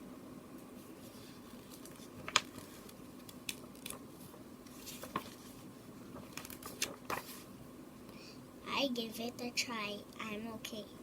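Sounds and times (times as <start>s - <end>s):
steady low hum: 0.0s - 11.0s
paper pages turning: 1.0s - 7.5s.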